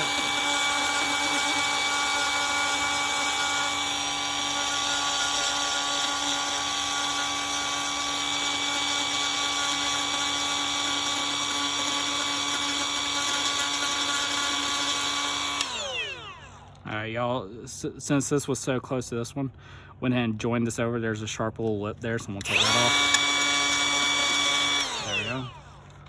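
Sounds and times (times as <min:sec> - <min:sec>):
rotary grinder grinding fiberglass: 0:00.0 - 0:16.8, 0:22.3 - 0:26.0.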